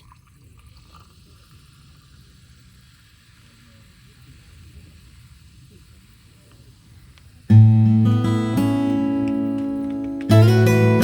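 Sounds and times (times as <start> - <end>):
food sizzling in a skillet: 0.8 - 9.2.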